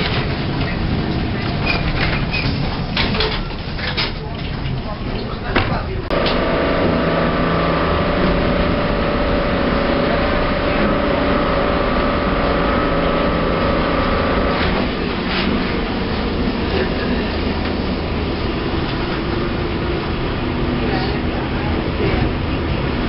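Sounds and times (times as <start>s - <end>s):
tram rumbling: 0.0s - 23.0s
tram whine: 6.1s - 23.0s.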